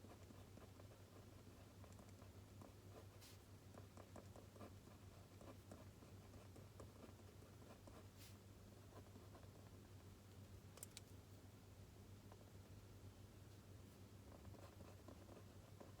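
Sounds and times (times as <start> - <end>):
pen writing on paper: 14.3 - 16.0.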